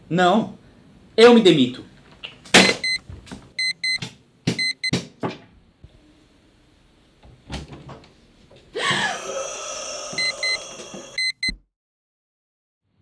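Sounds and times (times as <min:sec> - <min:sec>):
digital alarm clock beeping: 0:02.6 - 0:03.0, 0:03.6 - 0:04.0, 0:04.6 - 0:04.9, 0:10.2 - 0:10.6, 0:11.2 - 0:11.6.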